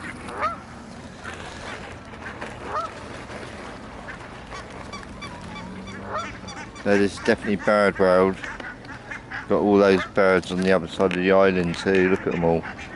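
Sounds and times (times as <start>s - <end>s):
flock of waterfowl calling: 0.0s - 0.6s, 4.0s - 10.3s, 11.8s - 12.9s
geese honking: 0.0s - 0.6s, 1.2s - 3.2s, 4.0s - 10.3s.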